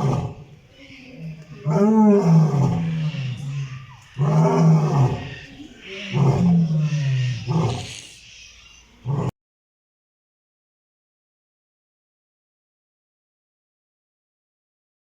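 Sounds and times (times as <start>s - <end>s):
big cat roaring: 0.0s - 0.5s, 1.2s - 8.2s, 9.0s - 9.3s.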